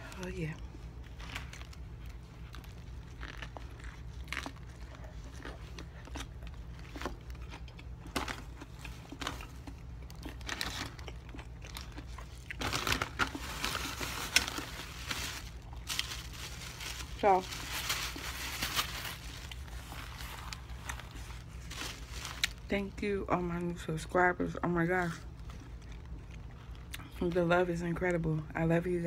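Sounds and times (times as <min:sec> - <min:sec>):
chewing and biting bread: 0:00.4 - 0:18.3, 0:19.1 - 0:22.7, 0:25.0 - 0:27.3
food wrapper crinkling: 0:00.9 - 0:23.0.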